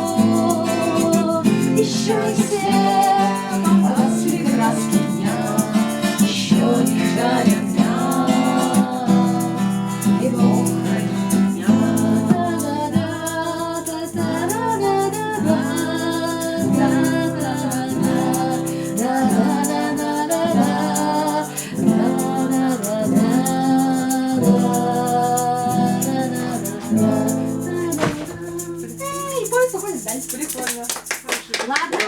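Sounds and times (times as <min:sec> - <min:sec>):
several voices singing: 0:00.0 - 0:29.0
acoustic guitar strumming: 0:00.0 - 0:30.6.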